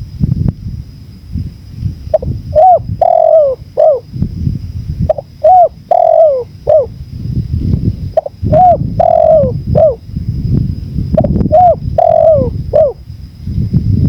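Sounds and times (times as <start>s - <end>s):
low wind rumble: 0.0s - 14.0s
dove cooing: 2.1s - 4.1s, 5.1s - 7.0s, 8.1s - 10.0s, 11.2s - 13.0s.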